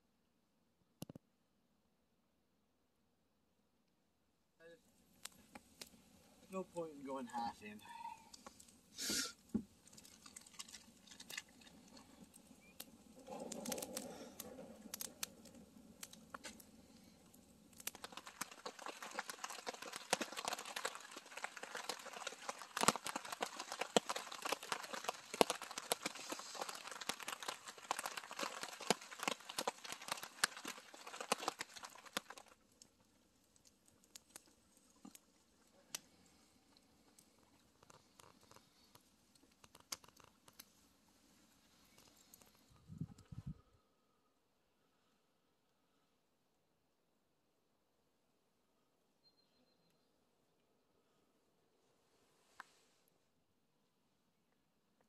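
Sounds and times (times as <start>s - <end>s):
campfire crackling and popping: 4.8s - 43.5s
rain pattering: 5.0s - 40.8s.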